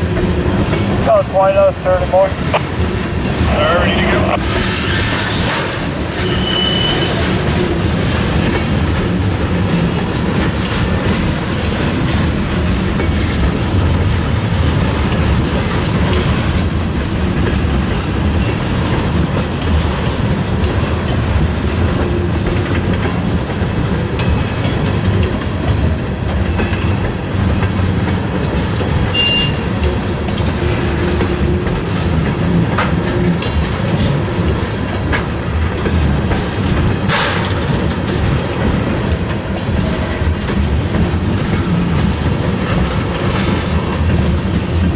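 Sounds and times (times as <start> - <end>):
freight train rumbling: 0.0 - 44.9
high wheel squeal: 4.4 - 7.5
wheels clicking over rail joints: 7.1 - 44.9.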